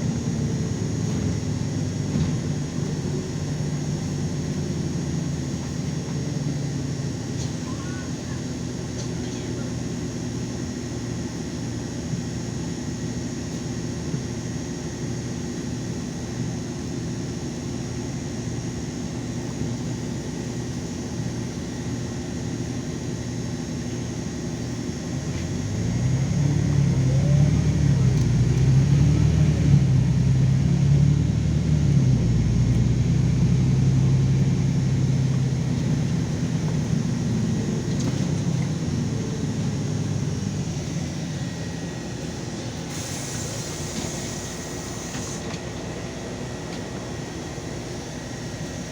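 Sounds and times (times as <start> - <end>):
bus engine idling and revving: 0.0 - 48.9.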